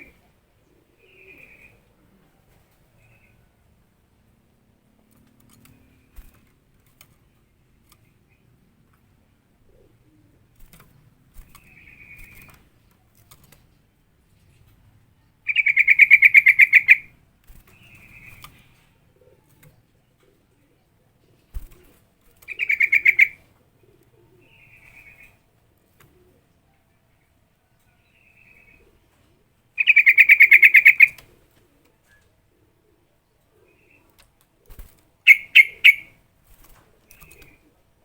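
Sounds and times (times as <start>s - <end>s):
bulbul chattering calls: 15.5s - 17.1s, 22.5s - 23.4s, 29.8s - 31.2s, 35.2s - 36.2s.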